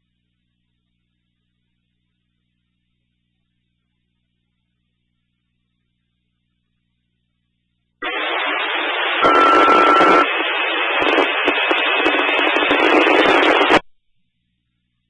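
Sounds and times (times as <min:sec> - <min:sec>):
radio static: 0:08.0 - 0:13.8
two-tone radio page: 0:08.0 - 0:13.8.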